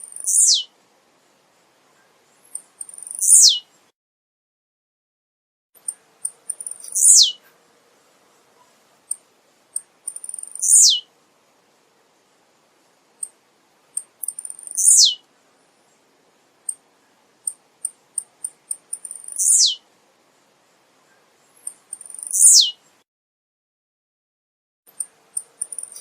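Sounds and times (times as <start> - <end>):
bird song with falling notes: 0.2 - 0.7, 2.9 - 3.7, 6.8 - 7.4, 10.6 - 11.0, 14.7 - 15.2, 19.1 - 19.8, 21.7 - 22.8
high ticking bird chips: 2.5 - 3.6, 5.8 - 7.4, 9.8 - 11.0, 14.0 - 15.2, 17.4 - 19.8, 21.5 - 22.7, 24.9 - 26.0.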